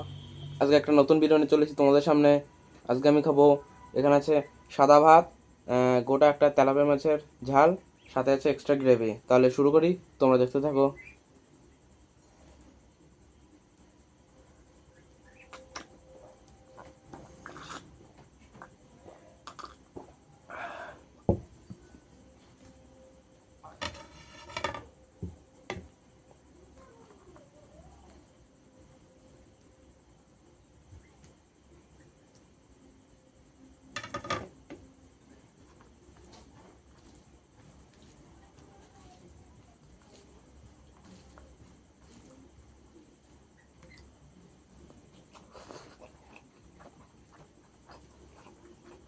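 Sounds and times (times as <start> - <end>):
low background hum: 0.0 - 49.0
faint eating sounds: 6.3 - 49.0
soft squishes of food: 35.2 - 49.0.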